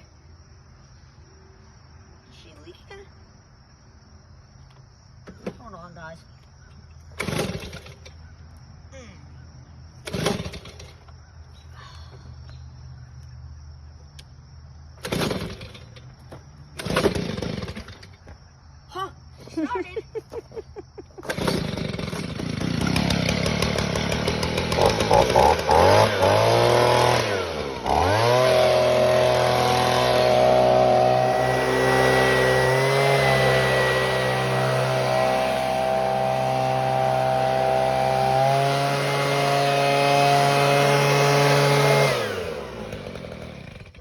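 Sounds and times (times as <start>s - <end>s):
leaf blower engine running: 7.2s - 8.1s, 10.0s - 11.0s, 16.8s - 18.0s, 21.2s - 44.0s.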